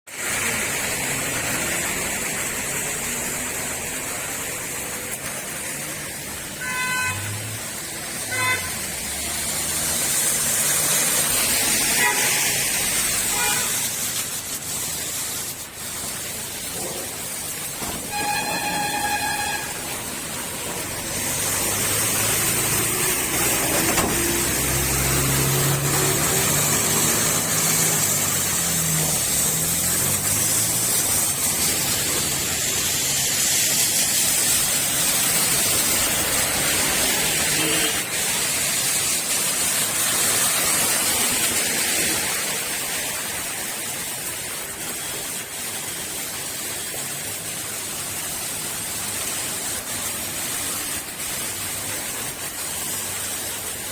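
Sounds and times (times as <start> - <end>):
heavy rain falling: 0.1 - 53.9
vehicle engine passing: 20.1 - 33.2.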